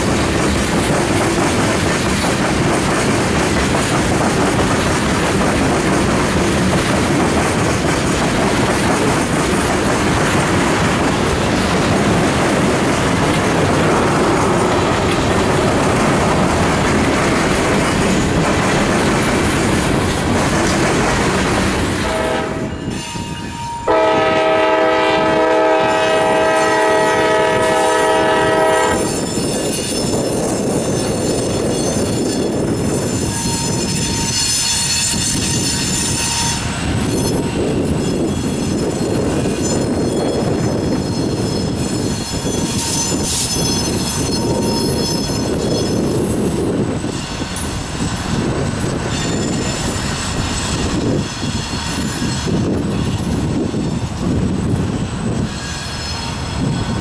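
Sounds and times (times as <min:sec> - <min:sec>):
train wheels rumbling on rails: 0:00.0 - 0:57.0
locomotive horn chord: 0:22.0 - 0:22.8, 0:23.7 - 0:29.1
high-pitched wheel squeal: 0:28.7 - 0:47.7, 0:49.0 - 0:53.3, 0:55.0 - 0:57.0.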